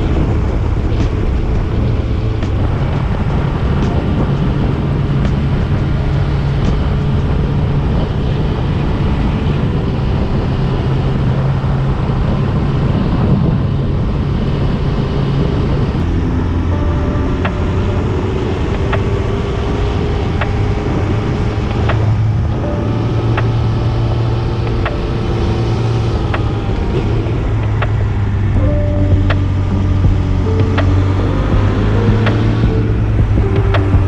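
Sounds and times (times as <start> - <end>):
motorcycle engine running: 0.0 - 10.1
wind and road noise: 0.0 - 34.0.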